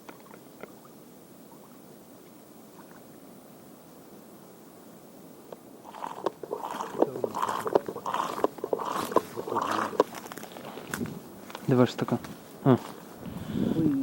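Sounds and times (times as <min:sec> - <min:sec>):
irregular clicks: 0:05.9 - 0:10.1
rustling and crinkling handling: 0:06.4 - 0:13.2.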